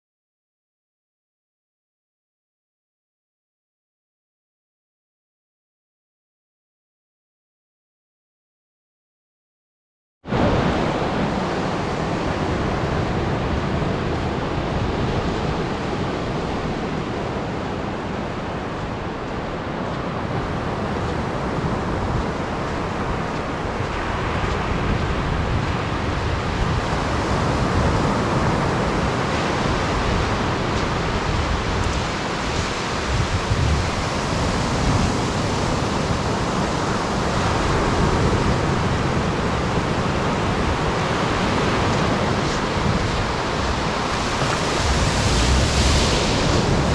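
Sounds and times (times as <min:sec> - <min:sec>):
surf breaking on beach: 0:10.3 - 0:46.9
wind buffeting microphone: 0:10.3 - 0:46.9.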